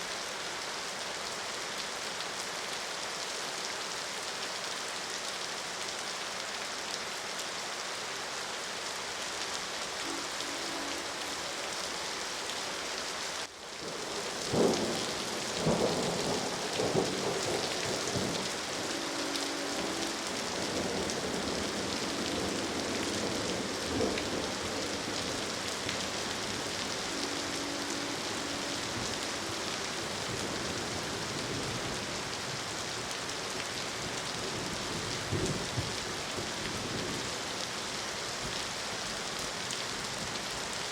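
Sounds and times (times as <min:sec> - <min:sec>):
steady rain: 0:00.0 - 0:40.9
distant train horn: 0:10.0 - 0:13.0, 0:16.0 - 0:32.2
thunder rumbling and cracking: 0:13.8 - 0:27.1.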